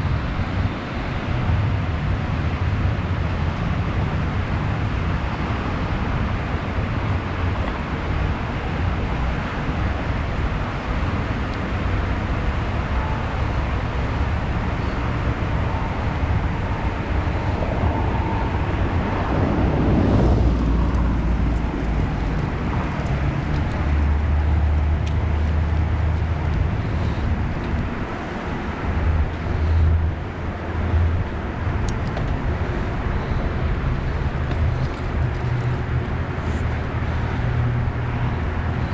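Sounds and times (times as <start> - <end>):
road and traffic noise: 0.0 - 38.9
low rumble: 11.9 - 37.5.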